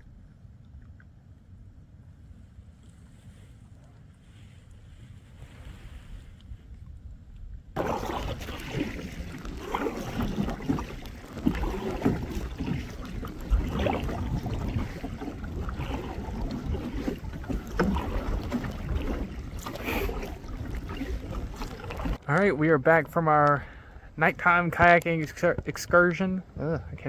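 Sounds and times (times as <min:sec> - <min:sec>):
wind buffeting microphone: 0:04.2 - 0:27.0
kayak paddle splashes: 0:07.8 - 0:26.6.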